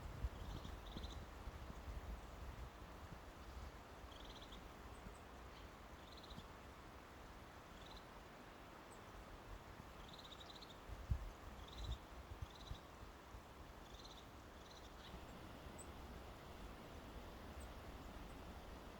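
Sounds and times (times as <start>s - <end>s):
songbirds trilling: 13.8s - 18.9s
low outdoor rumble: 15.0s - 18.9s.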